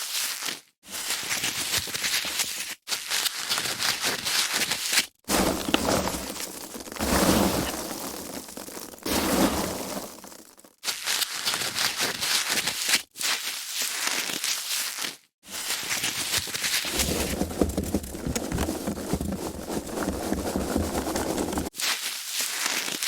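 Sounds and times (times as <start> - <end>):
foam packaging squeaking and crunching: 0.2 - 23.0.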